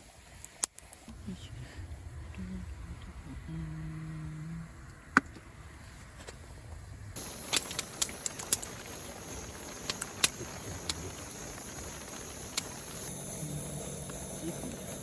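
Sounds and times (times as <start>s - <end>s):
faint steady hiss: 0.0s - 15.0s
campfire crackling: 7.1s - 15.0s.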